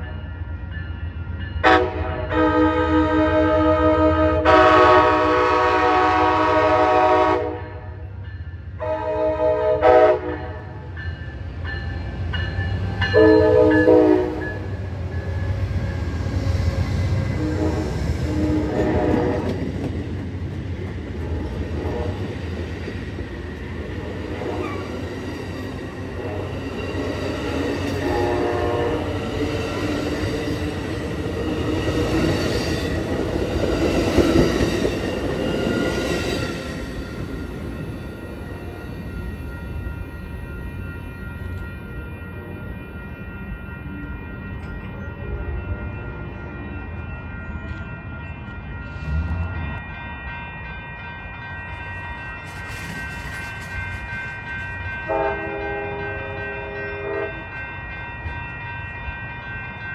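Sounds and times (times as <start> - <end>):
train wheels rumbling on rail: 0.8 - 59.9
train horn blasts: 1.6 - 8.0, 8.8 - 10.8, 13.1 - 14.6, 17.2 - 19.7, 21.2 - 22.4, 24.0 - 24.9, 26.1 - 29.6, 55.1 - 57.6.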